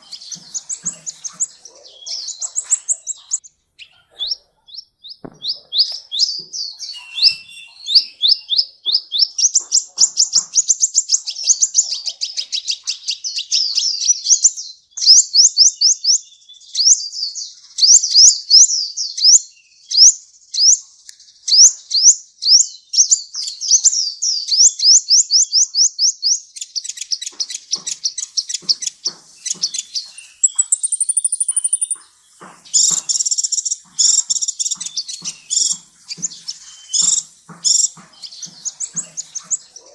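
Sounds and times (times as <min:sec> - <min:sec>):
high thin bird trill: 0:00.0 - 0:12.0, 0:24.5 - 0:39.9
sunbird high sweeping chirps: 0:00.0 - 0:16.1, 0:21.5 - 0:39.9.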